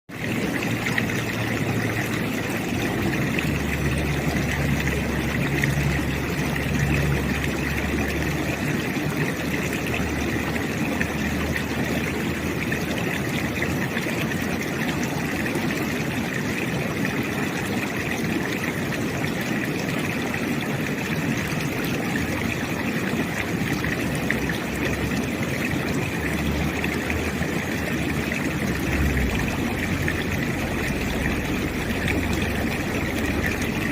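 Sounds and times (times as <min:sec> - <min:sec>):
river water rushing: 0:00.1 - 0:33.9
road traffic hum: 0:24.3 - 0:33.9.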